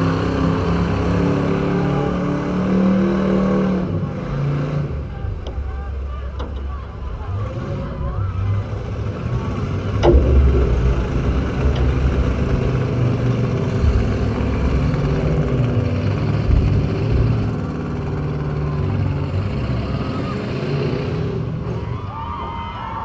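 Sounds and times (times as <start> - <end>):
car engine rumbling: 0.0 - 23.0
sharp bang: 10.0 - 15.5.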